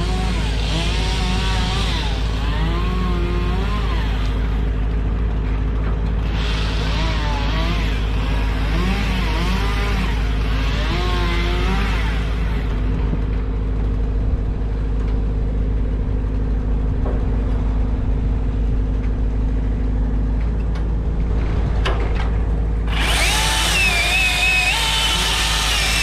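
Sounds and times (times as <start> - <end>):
power tool whining: 0.0 - 4.9, 6.2 - 13.3, 22.9 - 26.0
engine humming: 0.0 - 26.0.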